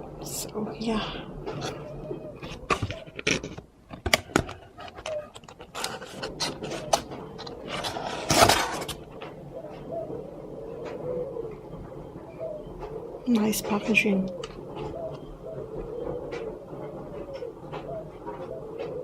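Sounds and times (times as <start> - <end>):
box clicks and knocks: 2.6 - 9.0
scraping rustle: 4.5 - 9.4.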